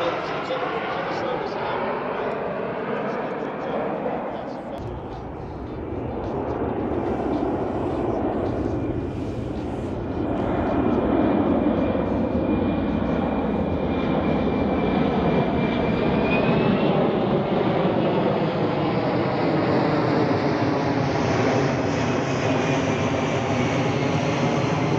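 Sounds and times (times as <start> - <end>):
airplane engines overhead: 0.0 - 24.9.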